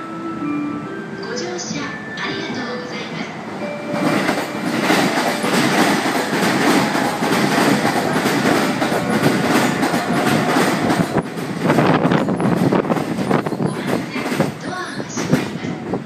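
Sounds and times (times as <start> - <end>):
train rumble: 0.0 - 16.0
train wheels clacking over rail joints: 4.1 - 15.6.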